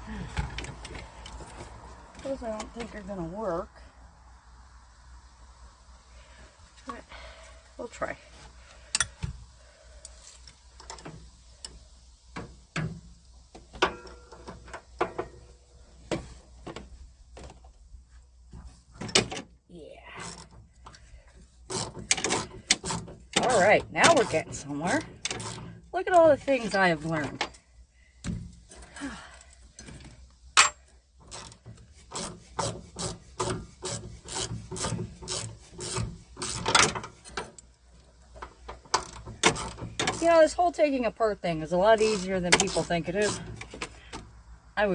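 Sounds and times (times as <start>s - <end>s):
ratchet wrench rasping: 31.2s - 36.8s, 41.9s - 43.8s.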